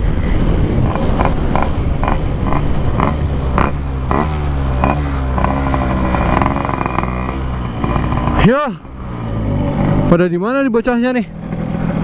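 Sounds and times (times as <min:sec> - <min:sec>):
loud rushing noise: 0:00.0 - 0:08.5
motorcycle engine running: 0:00.0 - 0:12.0.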